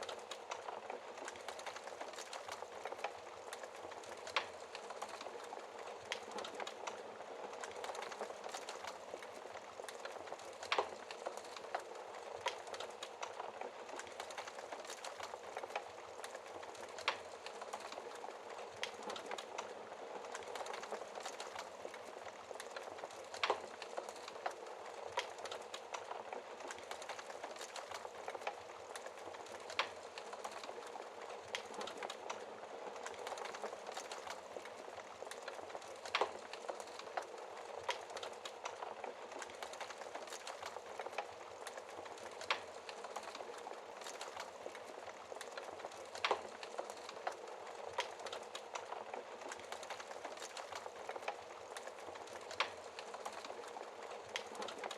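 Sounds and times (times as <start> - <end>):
wood fire crackling: 0.0 - 54.9.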